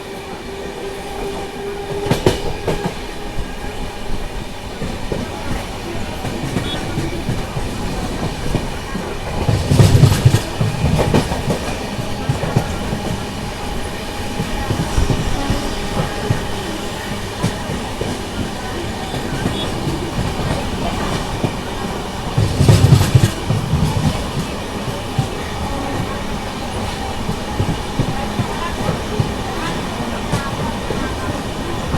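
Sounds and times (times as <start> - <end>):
train wheels clattering on rails: 0.0 - 31.9.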